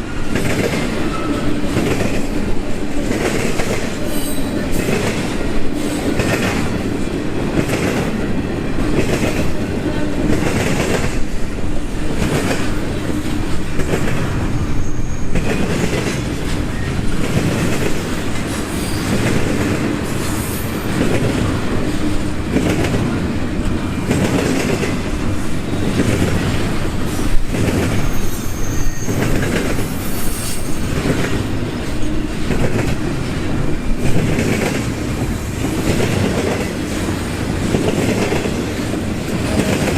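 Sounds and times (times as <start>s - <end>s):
freight train rumbling past: 0.0s - 39.9s
faint wheel squeals: 14.8s - 15.5s, 28.0s - 30.8s.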